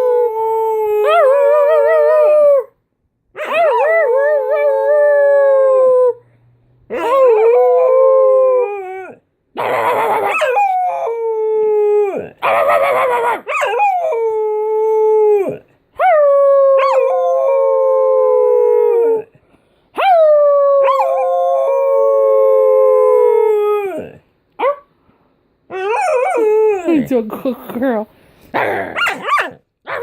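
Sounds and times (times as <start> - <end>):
dog howling: 6.9 - 19.3, 20.0 - 24.7.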